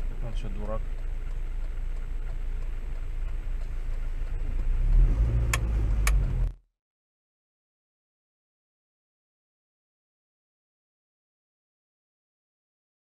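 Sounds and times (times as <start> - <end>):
car engine and road rumble: 0.0 - 6.7.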